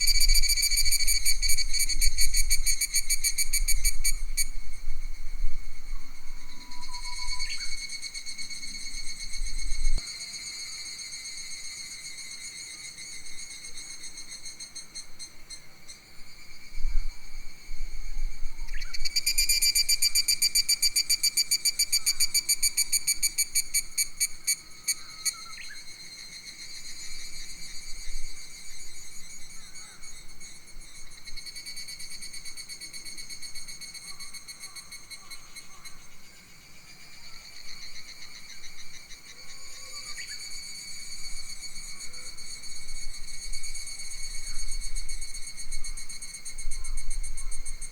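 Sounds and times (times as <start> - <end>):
wind rumble on microphone: 0.0 - 7.8, 8.8 - 10.0, 16.7 - 19.1
insects buzzing: 18.7 - 47.9.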